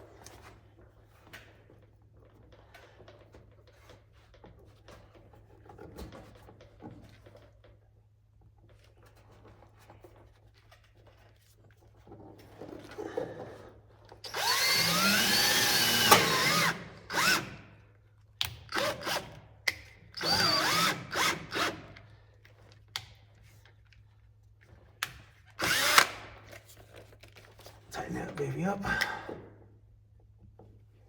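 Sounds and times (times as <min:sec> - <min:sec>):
power drill running: 0:14.2 - 0:17.6, 0:18.7 - 0:19.2, 0:20.2 - 0:21.9, 0:25.6 - 0:26.3.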